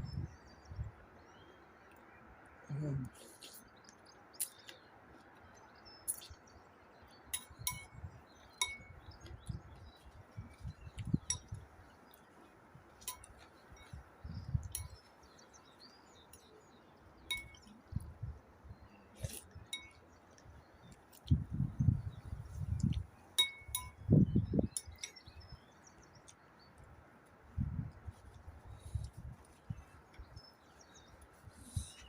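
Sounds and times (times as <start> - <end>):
light ringing clinks: 7.4 - 8.0, 8.6 - 9.1, 11.2 - 11.6, 13.0 - 15.1, 17.3 - 17.7, 23.4 - 25.4.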